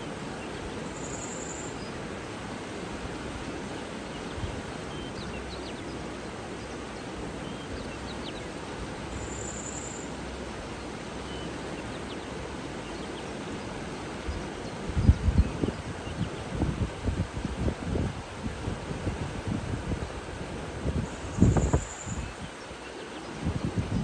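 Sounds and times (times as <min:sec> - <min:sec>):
running water rushing: 0:00.0 - 0:24.0.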